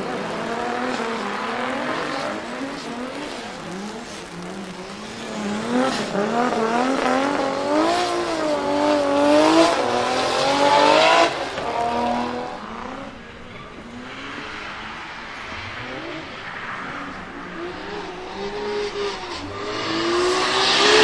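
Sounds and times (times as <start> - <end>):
car engine revving hard: 0.0 - 21.0.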